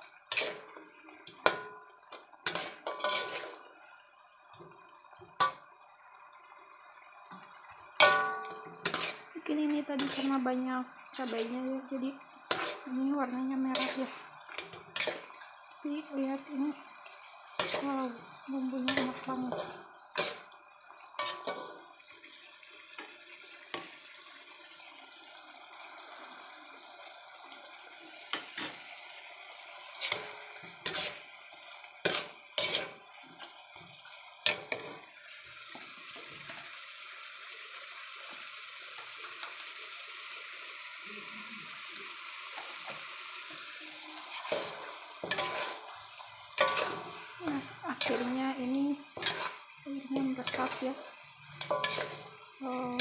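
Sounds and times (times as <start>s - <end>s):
chicken sizzling in sauce: 0.0s - 53.0s
metal spatula scraping pan: 0.2s - 3.7s, 8.0s - 16.4s, 17.6s - 20.6s, 21.2s - 21.8s, 29.9s - 31.3s, 32.0s - 33.6s, 44.2s - 53.0s.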